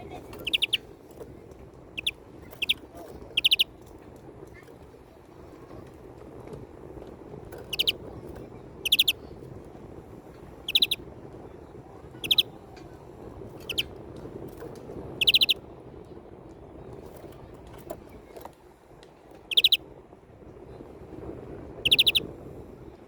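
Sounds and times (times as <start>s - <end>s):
low background noise: 0.0s - 23.0s
greenfinch trilled calls: 0.4s - 0.8s, 2.0s - 3.7s, 7.7s - 8.0s, 8.8s - 9.2s, 10.7s - 11.0s, 12.2s - 12.5s, 13.6s - 13.9s, 15.2s - 15.6s, 19.5s - 19.8s, 21.9s - 22.2s.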